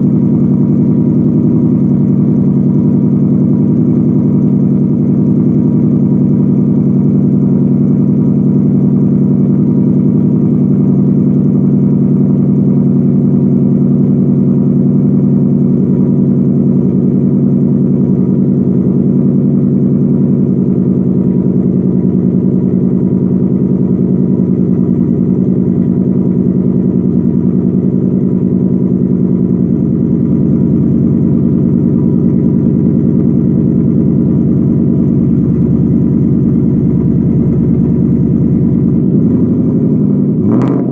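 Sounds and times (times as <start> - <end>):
car exhaust idling: 0.0 - 40.9.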